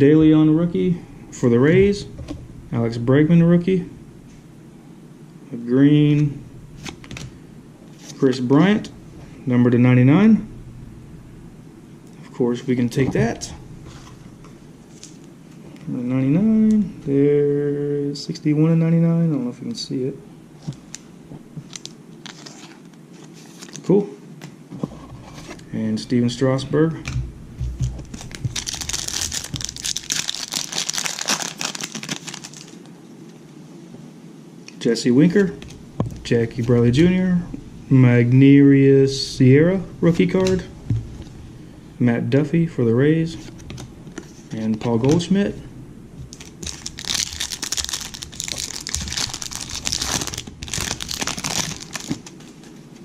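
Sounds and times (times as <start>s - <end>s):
wrapper tearing and crinkling: 21.7s - 23.9s, 28.0s - 32.8s, 46.3s - 52.4s.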